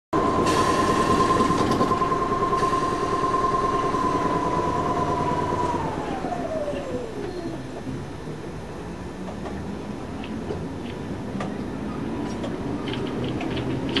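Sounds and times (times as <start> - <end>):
train motor whine: 0.2 - 8.2
wheel-on-rail rumble: 0.2 - 14.0.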